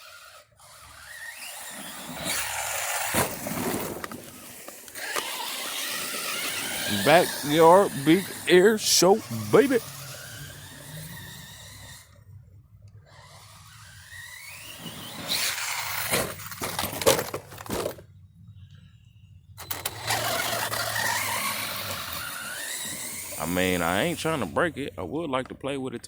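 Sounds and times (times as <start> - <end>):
toy truck landing and tumbling: 0.0 - 8.4, 13.1 - 18.2, 19.6 - 23.5
electric motor whining: 0.0 - 12.3, 13.1 - 16.8, 19.6 - 24.8.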